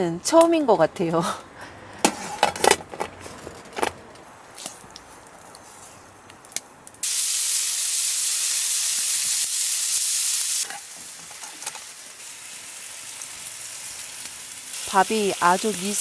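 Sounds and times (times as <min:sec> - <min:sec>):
food sizzling in a hot pan: 0:07.0 - 0:16.0.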